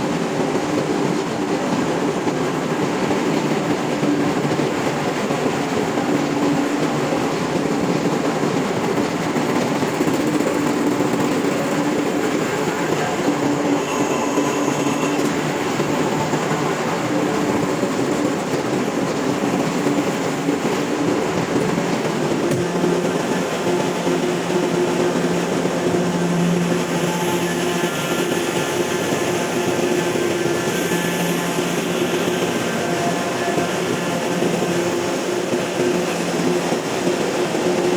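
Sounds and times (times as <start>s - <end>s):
engine room machinery drone: 8.8s - 37.9s.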